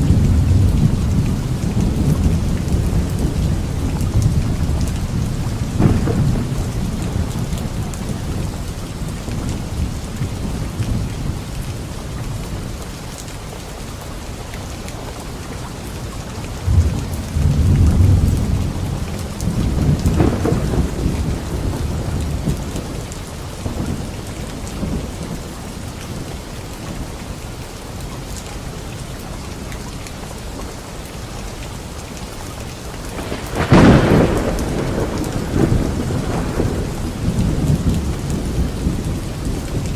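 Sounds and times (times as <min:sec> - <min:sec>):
thunder rumbling: 0:00.0 - 0:11.6, 0:16.6 - 0:25.6, 0:33.1 - 0:39.9
rain falling on leaves: 0:00.0 - 0:39.9
sharp thunderclap: 0:04.1 - 0:08.4, 0:19.4 - 0:22.9, 0:33.2 - 0:39.9.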